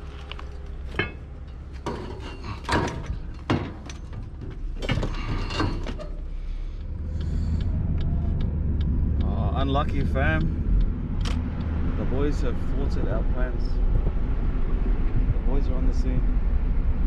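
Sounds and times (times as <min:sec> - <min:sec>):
low engine hum: 0:00.0 - 0:17.0
objects knocking and clattering: 0:00.2 - 0:06.2.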